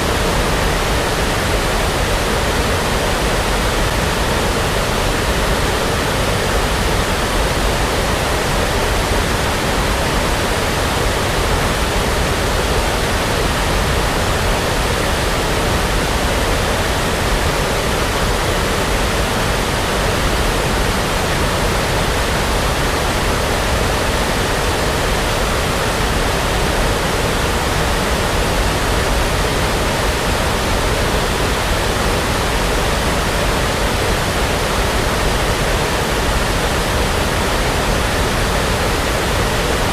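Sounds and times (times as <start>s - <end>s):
brown noise hiss: 0.0s - 39.9s.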